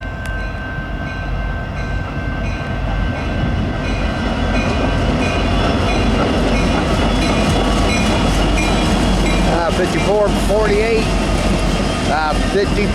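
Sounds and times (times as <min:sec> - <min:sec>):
train locomotive rumble: 0:00.0 - 0:12.9
wheels clicking on rails: 0:02.9 - 0:12.9.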